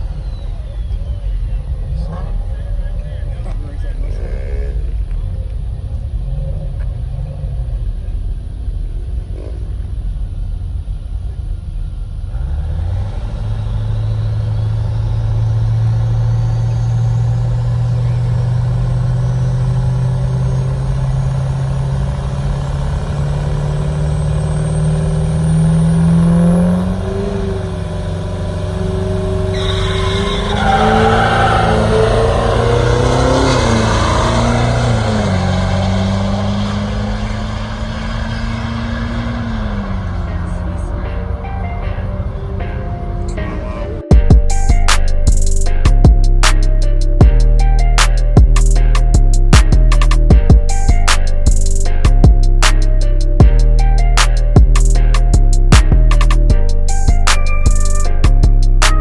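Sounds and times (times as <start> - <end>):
truck engine revving: 12.3 - 59.0.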